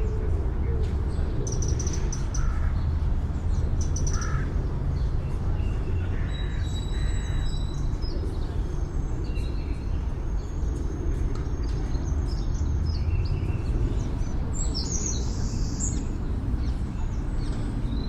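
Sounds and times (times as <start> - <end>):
city traffic rumble: 0.0 - 18.0
birds harsh calls: 3.8 - 4.6.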